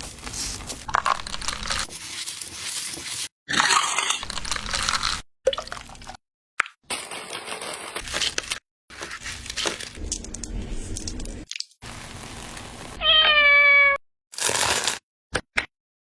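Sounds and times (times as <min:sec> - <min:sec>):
cat meowing: 0:13.0 - 0:14.0.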